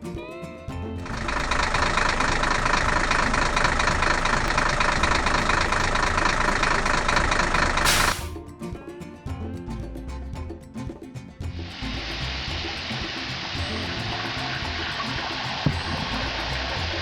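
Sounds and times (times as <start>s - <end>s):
cartoon engine running: 1.0s - 8.4s
short burst of hiss: 7.8s - 8.4s.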